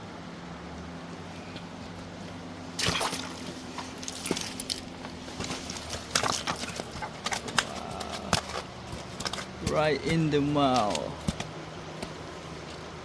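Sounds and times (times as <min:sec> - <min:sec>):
water splashing and sloshing: 0:02.6 - 0:12.2.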